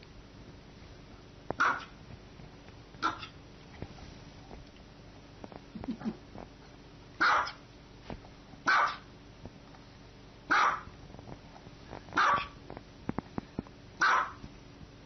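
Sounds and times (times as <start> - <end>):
small dog barking: 1.6 - 2.0, 3.0 - 3.4, 7.2 - 7.6, 8.6 - 9.1, 10.5 - 10.9, 12.2 - 12.6, 14.0 - 14.4.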